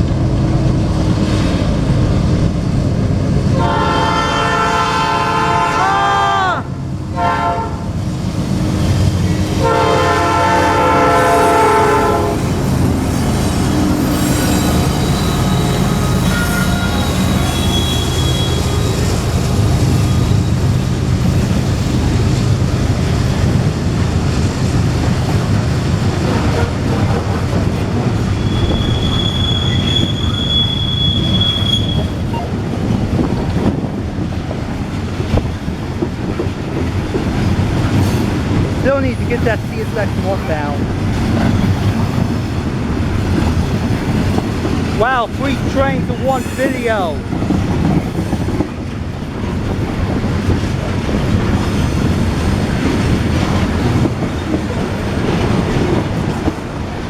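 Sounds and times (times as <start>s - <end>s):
train rumbling past: 0.0s - 57.0s
locomotive horn: 3.5s - 7.9s, 9.6s - 12.7s, 14.0s - 19.2s
high wheel squeal: 12.4s - 20.8s, 28.3s - 32.6s.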